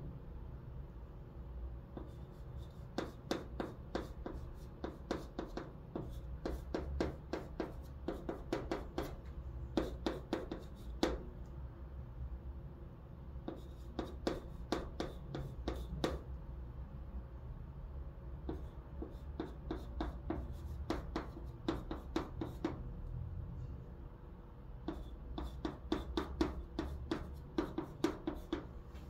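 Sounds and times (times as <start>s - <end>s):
chalk writing on blackboard: 1.9s - 11.3s, 13.4s - 16.3s, 18.4s - 22.8s, 24.8s - 28.7s.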